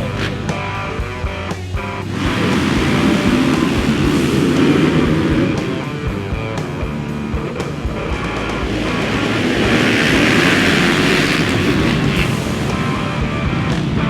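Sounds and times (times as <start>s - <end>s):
motorcycle engines running: 0.0s - 14.0s.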